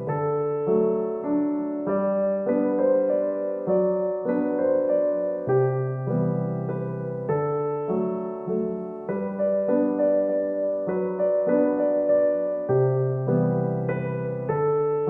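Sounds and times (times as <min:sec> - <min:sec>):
soft piano melody: 0:00.0 - 0:15.0.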